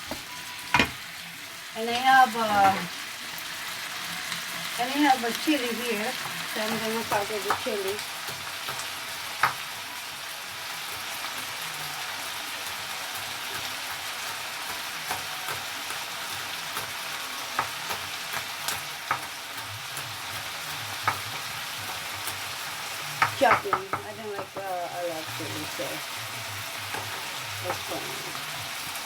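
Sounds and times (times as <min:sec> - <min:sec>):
chicken sizzling in a pan: 0:00.0 - 0:29.0.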